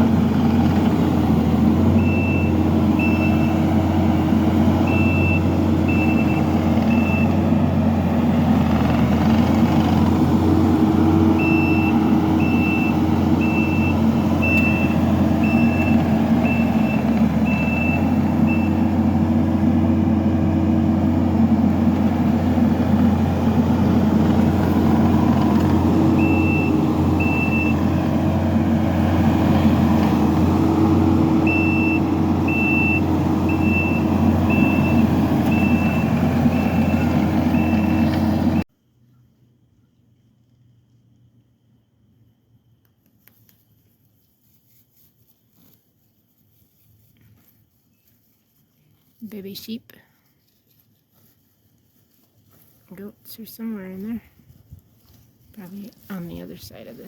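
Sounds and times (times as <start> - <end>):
diesel engine running: 0.0 - 38.7
reversing alarm beeping: 1.9 - 7.5, 11.2 - 19.0, 25.0 - 28.3, 30.6 - 38.6.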